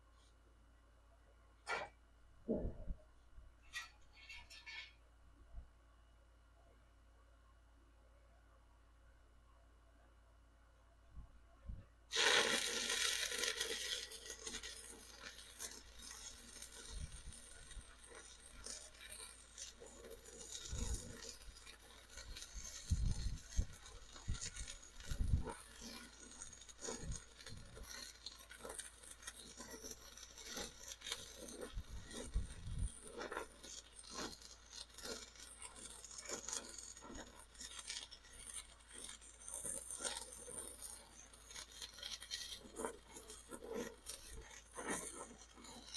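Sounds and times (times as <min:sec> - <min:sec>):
welding arc crackling: 0:12.1 - 0:45.9.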